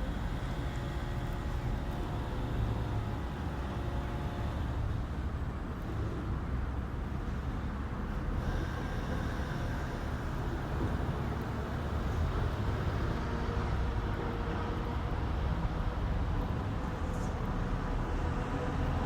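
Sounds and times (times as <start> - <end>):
distant traffic rumble: 0.0 - 13.2
faint steady tones hum: 7.0 - 13.1.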